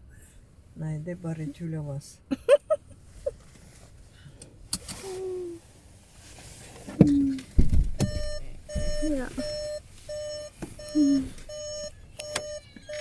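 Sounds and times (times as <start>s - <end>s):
low thump: 7.0s - 9.2s.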